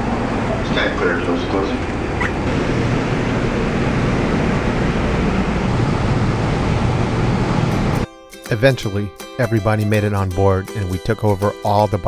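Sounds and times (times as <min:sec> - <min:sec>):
train rumbling: 0:00.0 - 0:08.0.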